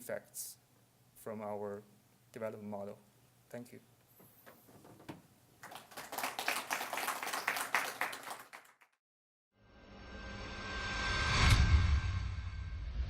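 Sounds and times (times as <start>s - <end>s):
audience applauding: 5.6s - 9.0s.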